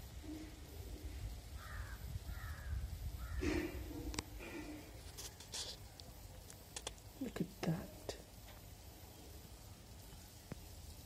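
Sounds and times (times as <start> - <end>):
faint bird calls: 0.1 - 7.0
light ticks: 5.9 - 7.1.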